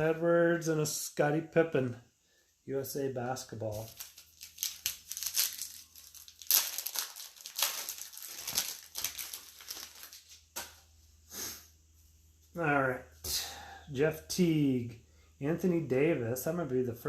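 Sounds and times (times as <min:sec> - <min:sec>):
plastic packaging crinkling: 0:03.7 - 0:10.8.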